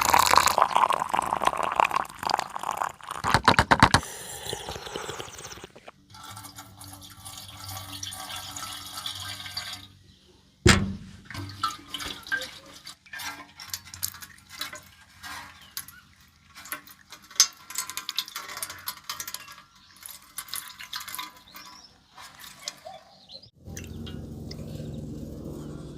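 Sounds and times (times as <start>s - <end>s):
water dripping: 0.0s - 3.3s, 11.2s - 15.0s, 23.6s - 25.6s
loud knock on metal tank: 10.7s - 11.3s.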